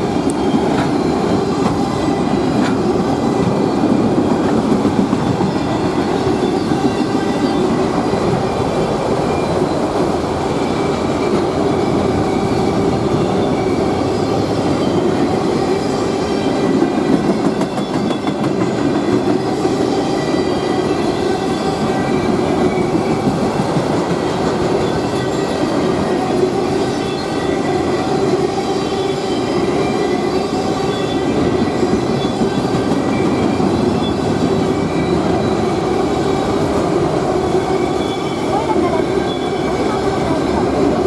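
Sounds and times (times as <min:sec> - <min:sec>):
freight train rumbling past: 0:00.0 - 0:41.0
wheel squeal: 0:24.6 - 0:41.0.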